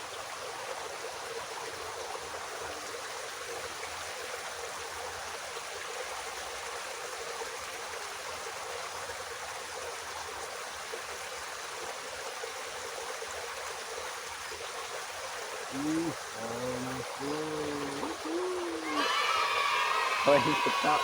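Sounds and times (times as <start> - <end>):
water flowing in a ditch: 0.0 - 21.0.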